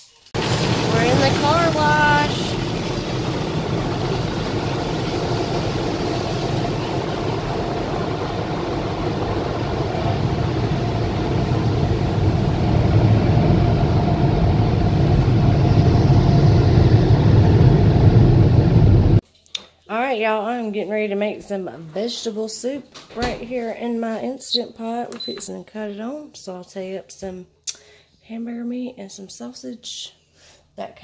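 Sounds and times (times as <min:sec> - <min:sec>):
muffled car wash spray and machinery: 0:00.0 - 0:19.2.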